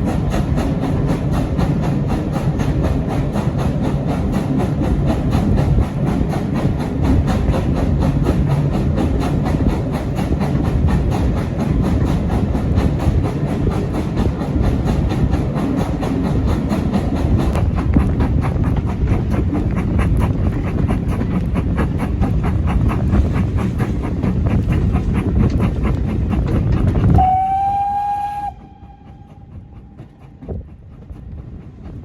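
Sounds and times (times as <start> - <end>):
train rumbling and clattering: 0.0 - 32.0
locomotive whistle: 27.1 - 29.8.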